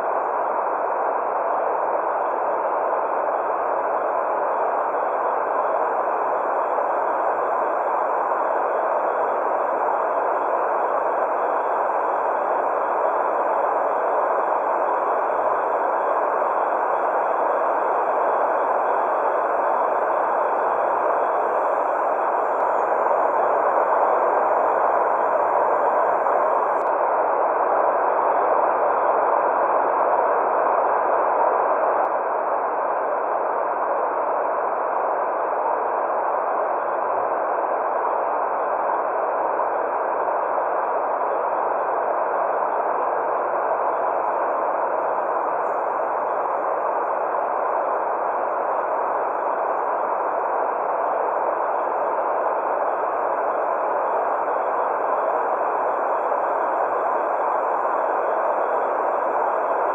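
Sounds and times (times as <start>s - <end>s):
white noise hiss: 0.0s - 32.0s.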